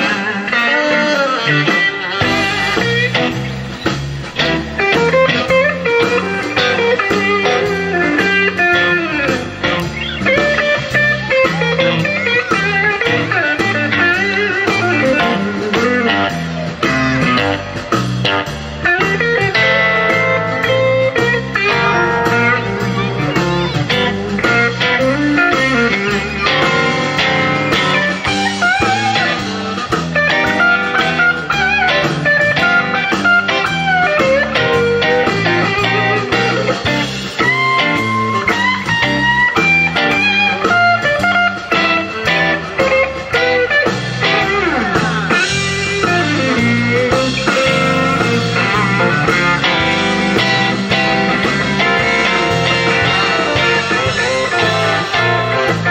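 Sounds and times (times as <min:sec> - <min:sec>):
bass line: 0:00.0 - 0:55.9
drums: 0:00.0 - 0:55.9
electric guitar lead with bends: 0:00.0 - 0:55.9.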